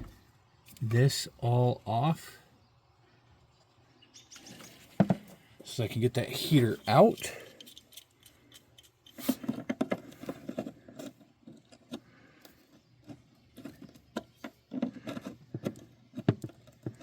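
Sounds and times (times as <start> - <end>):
hand tools clicking and scraping: 4.3 - 17.0.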